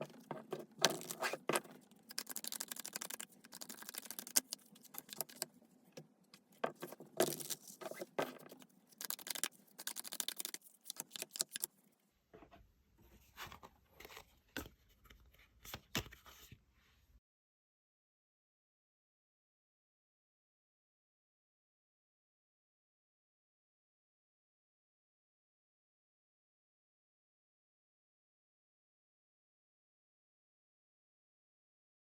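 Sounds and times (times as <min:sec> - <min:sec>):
cards being shuffled: 0:00.0 - 0:05.5, 0:06.7 - 0:11.7.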